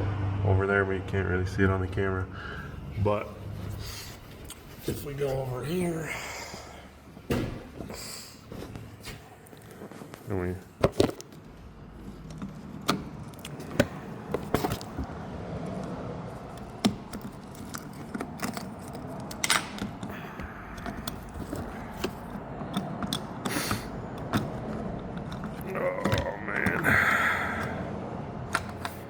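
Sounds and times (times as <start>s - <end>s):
metallic clicks and rattles: 15.7s - 26.9s.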